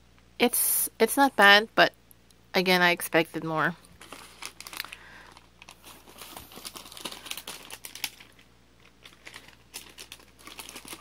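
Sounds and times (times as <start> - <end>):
snack packaging crinkling: 3.9 - 11.0.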